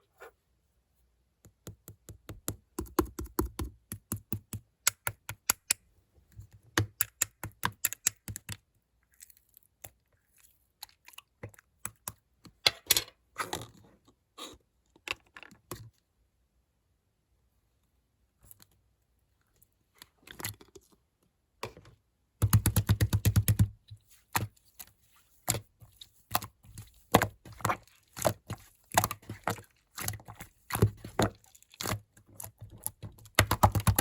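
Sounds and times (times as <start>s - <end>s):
slime squelching: 22.4s - 34.0s.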